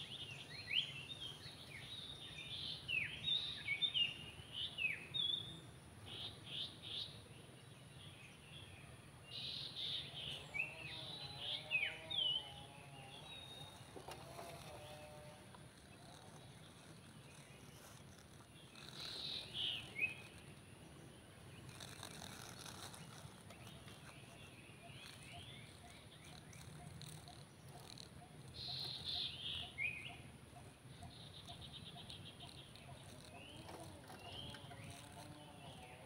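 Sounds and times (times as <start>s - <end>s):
faint bird chirps: 7.9s - 36.0s
bird rapid trill: 21.6s - 35.9s.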